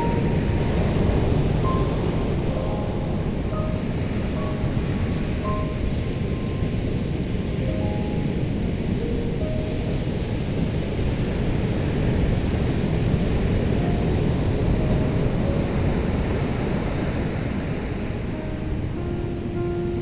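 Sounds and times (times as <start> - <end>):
ocean surf breaking: 0.0 - 20.0.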